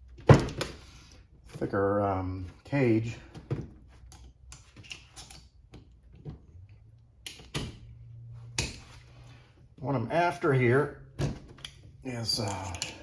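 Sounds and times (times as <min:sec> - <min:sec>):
metallic clicks of hand tools: 0:12.4 - 0:13.0.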